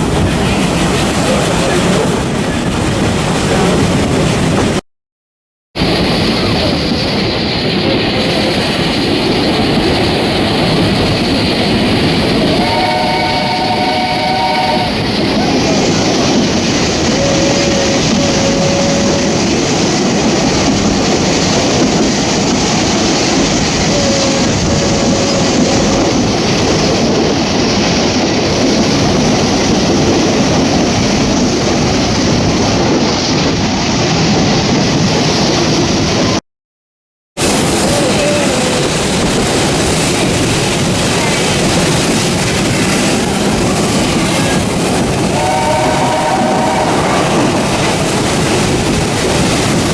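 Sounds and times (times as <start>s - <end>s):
train wheel and rail noise: 0.0s - 4.8s, 5.8s - 36.4s, 37.4s - 49.9s
train whistle: 12.4s - 15.6s, 17.0s - 19.9s, 23.8s - 26.3s, 45.3s - 47.8s.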